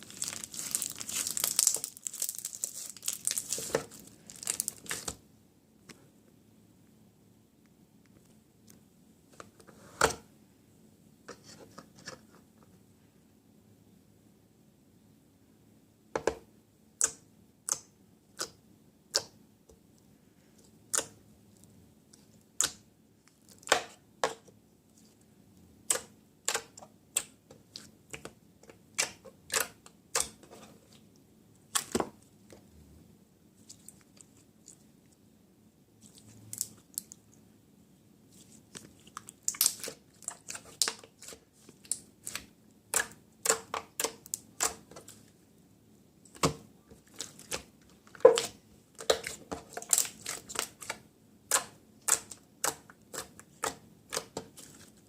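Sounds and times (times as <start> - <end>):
slime and plastic packaging clicking: 0.1 - 5.2.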